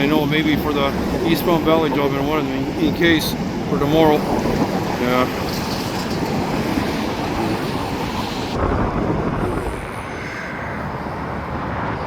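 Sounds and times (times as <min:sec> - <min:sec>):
rumbling vehicle noise: 0:00.0 - 0:12.0
wind buffeting microphone: 0:00.0 - 0:12.0.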